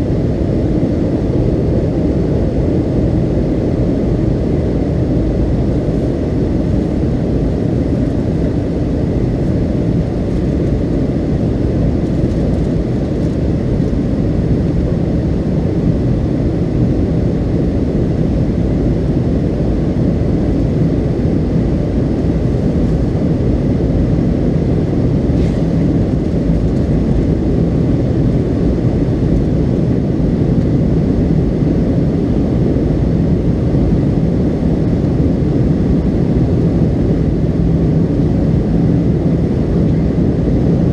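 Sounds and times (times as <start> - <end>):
airflow over fuselage: 0.0 - 40.9
jet engines rumbling: 0.0 - 40.9.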